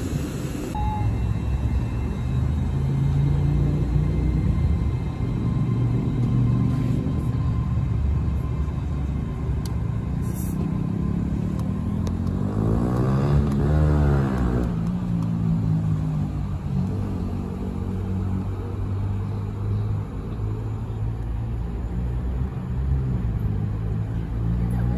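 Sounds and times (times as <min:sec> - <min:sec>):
passenger train running: 0:00.0 - 0:13.7.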